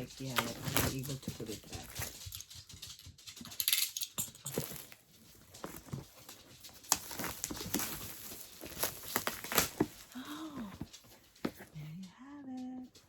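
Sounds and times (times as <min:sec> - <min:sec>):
packaging rustling and crinkling: 0:00.0 - 0:02.8, 0:03.4 - 0:11.7
sharp packaging snaps: 0:06.7 - 0:10.8.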